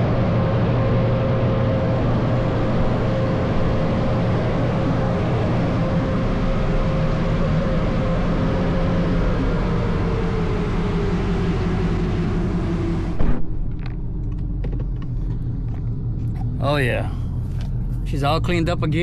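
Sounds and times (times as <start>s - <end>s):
car wash dryer blowers: 0.0s - 13.2s
low rumble: 0.0s - 19.0s.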